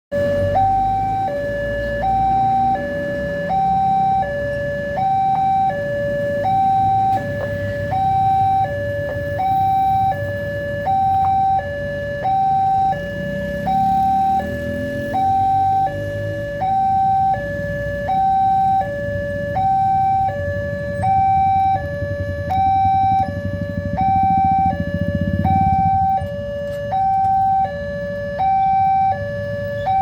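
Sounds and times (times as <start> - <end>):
road traffic rumble: 0.1 - 30.0
two-tone level crossing alarm: 0.1 - 30.0.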